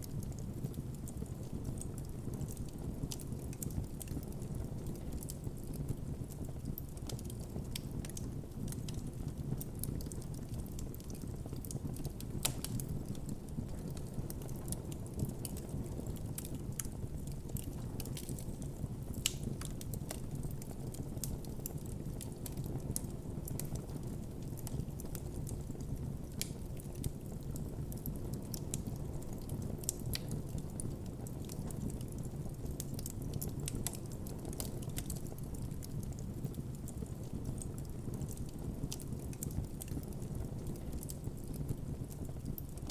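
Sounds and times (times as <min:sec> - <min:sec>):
campfire burning: 0:00.0 - 0:42.9
wood crackling and popping: 0:00.0 - 0:42.9.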